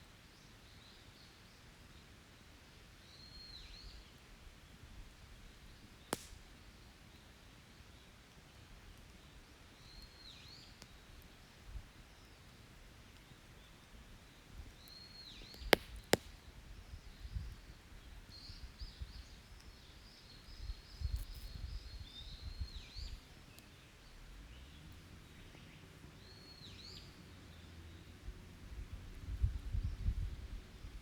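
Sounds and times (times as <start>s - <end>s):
campfire pops: 5.6s - 6.8s, 9.8s - 23.8s
small birds calling: 9.1s - 28.2s.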